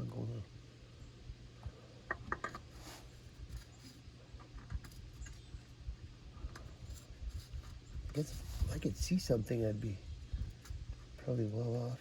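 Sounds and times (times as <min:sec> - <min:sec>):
faint taps and scrapes: 0:01.6 - 0:05.7.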